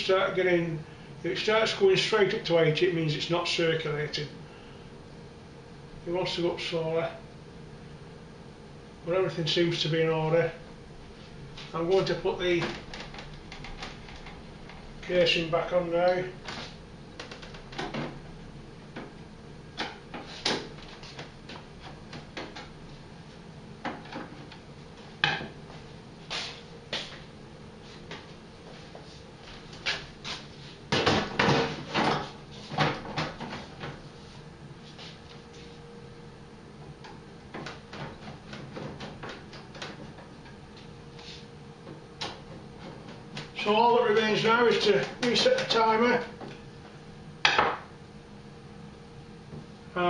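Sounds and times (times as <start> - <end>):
faint steady hum: 0.0 - 50.0
clicks and knocks of boiler casing: 30.9 - 34.0, 37.0 - 40.6
knocks and clicks of boiler casing: 36.8 - 40.6, 41.8 - 43.5.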